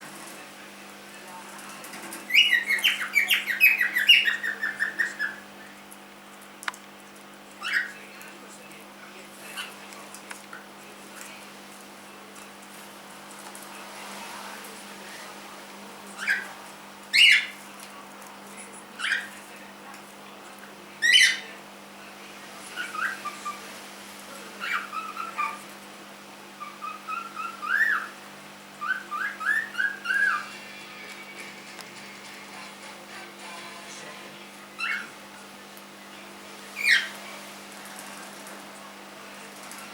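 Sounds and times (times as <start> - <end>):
cockatiel chirping: 2.3 - 5.4, 16.2 - 16.5, 26.6 - 28.2, 28.8 - 30.5
cockatiel whistling: 26.6 - 28.2, 28.8 - 30.5.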